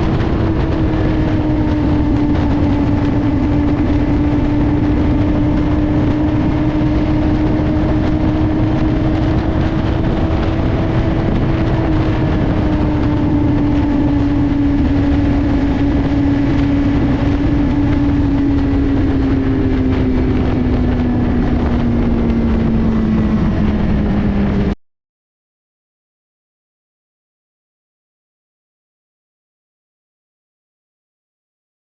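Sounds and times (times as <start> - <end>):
motorcycle engine running: 0.0 - 24.8
wind and road noise: 0.0 - 24.8.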